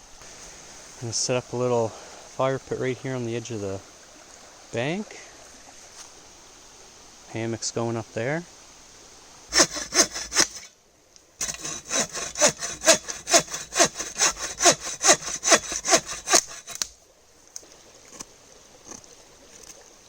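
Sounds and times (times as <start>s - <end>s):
hand saw cutting wood: 9.5s - 10.7s, 11.4s - 16.9s.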